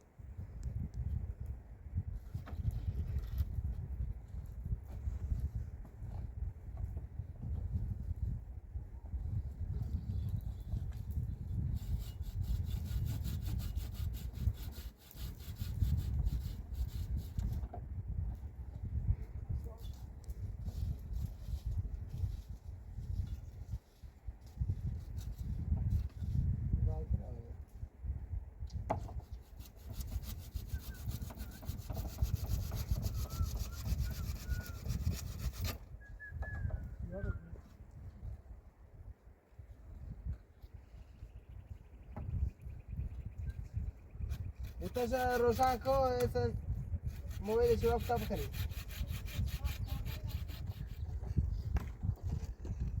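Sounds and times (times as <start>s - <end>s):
rapid scraping strokes: 29.6s - 35.8s, 47.2s - 51.0s.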